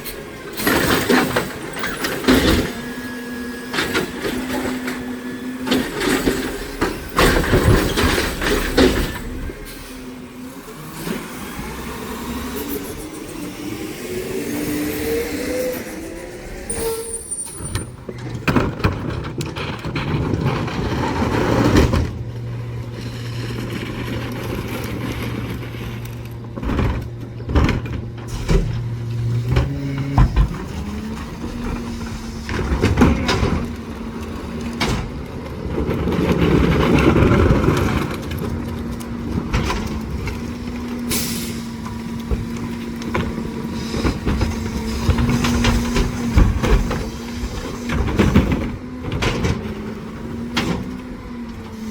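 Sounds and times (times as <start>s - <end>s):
garbage truck engine humming: 0.0s - 51.9s
metal clanks and bangs: 3.7s - 10.2s.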